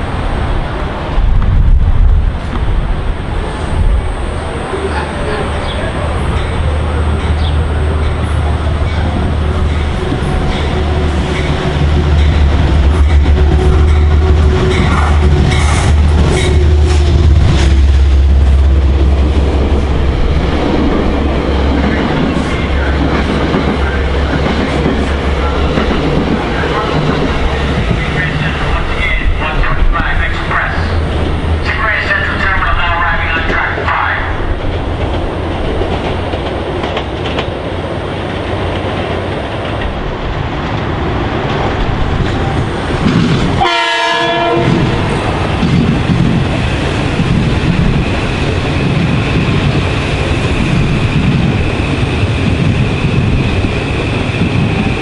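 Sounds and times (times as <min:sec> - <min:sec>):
diesel locomotive engine drone: 0:00.0 - 0:55.0
train cars rolling past: 0:00.0 - 0:55.0
train horn blast: 0:43.6 - 0:45.2.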